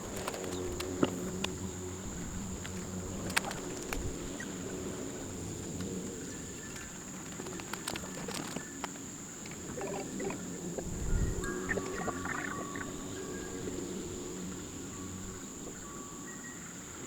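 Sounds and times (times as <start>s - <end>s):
low hum: 0.0s - 7.5s
high-pitched insect drone: 0.0s - 17.0s.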